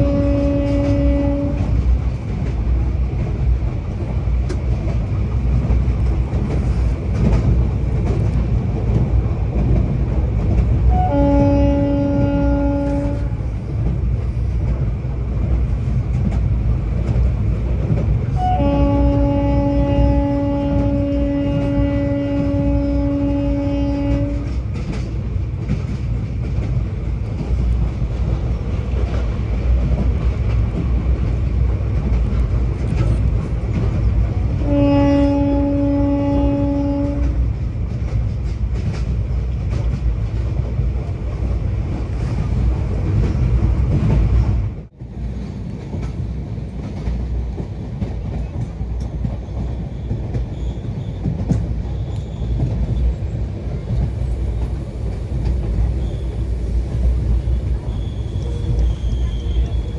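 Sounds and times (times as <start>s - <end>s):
locomotive horn: 0.0s - 1.8s, 10.9s - 13.5s, 18.3s - 24.6s, 34.6s - 37.4s
train rumbling: 0.0s - 59.9s.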